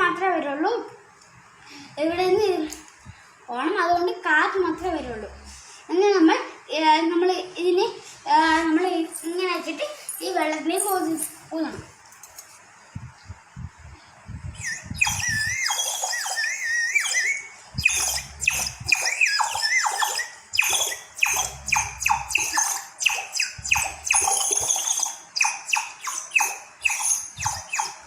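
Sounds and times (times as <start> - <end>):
water whistle bird-like chirps: 14.6 - 28.0.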